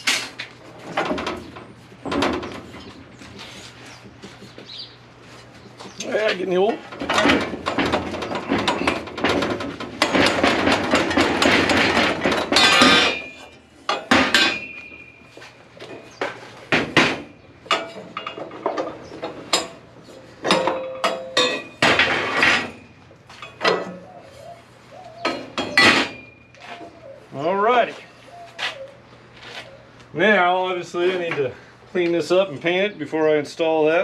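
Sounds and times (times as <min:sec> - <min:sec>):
metallic clanks and knocks: 0:00.0 - 0:03.2, 0:05.8 - 0:15.2, 0:15.8 - 0:24.1, 0:25.2 - 0:26.4.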